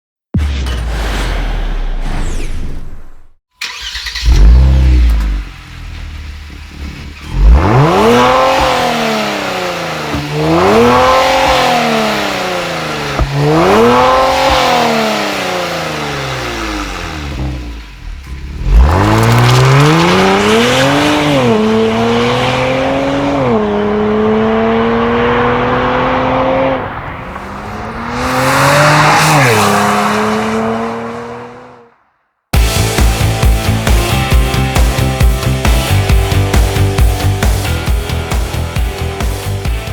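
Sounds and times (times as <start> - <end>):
car engine starting: 0.4 - 32.0, 32.6 - 39.9
car engine revving: 0.9 - 32.0
car engine idling: 3.6 - 19.6
car accelerating through gears: 7.1 - 32.0.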